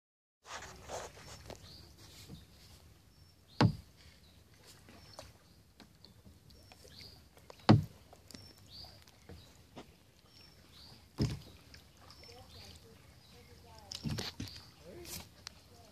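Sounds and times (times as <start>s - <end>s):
sharp knocks on kayak: 3.5s - 3.9s, 7.6s - 8.0s, 11.2s - 11.5s.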